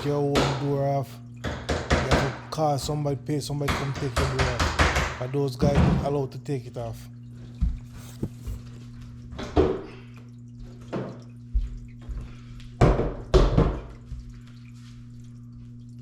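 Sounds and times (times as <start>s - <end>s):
hard objects knocking: 3.7s - 6.0s, 8.0s - 8.6s.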